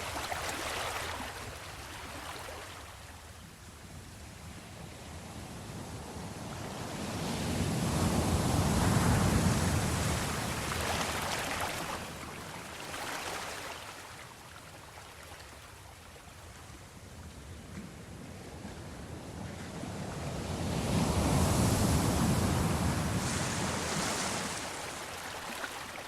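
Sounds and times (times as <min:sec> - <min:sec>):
sea waves washing in and out: 0:00.0 - 0:26.0.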